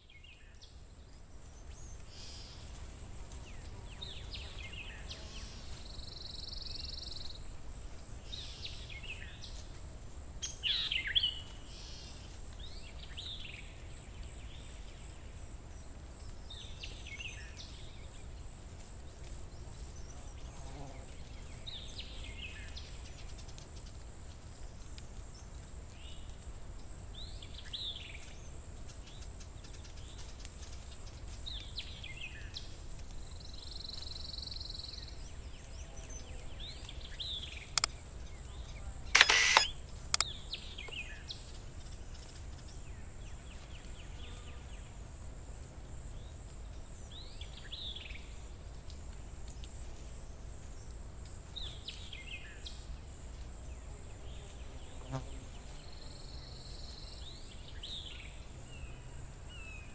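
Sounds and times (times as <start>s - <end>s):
birds chirping: 39.2s - 41.0s.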